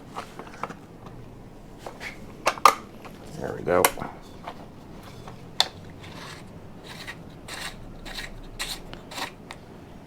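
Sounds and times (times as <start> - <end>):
soft rubbing scrapes: 4.1 - 9.4.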